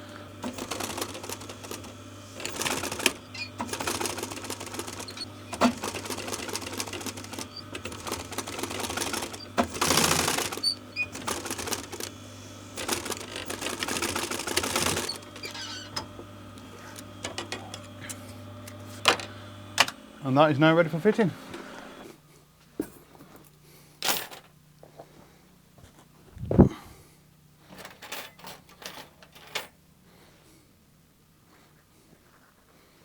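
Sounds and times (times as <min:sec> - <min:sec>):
sewing machine stitching: 0:00.1 - 0:20.0.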